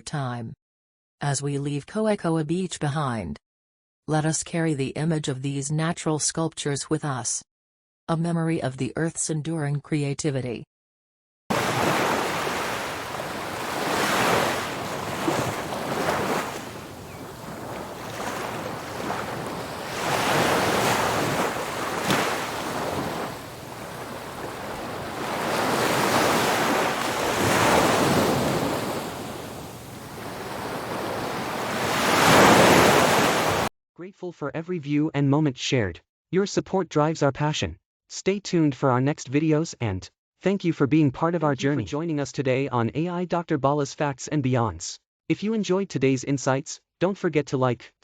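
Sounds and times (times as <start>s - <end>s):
ocean surf breaking on beach: 11.5s - 33.7s
wind on microphone: 13.3s - 31.8s.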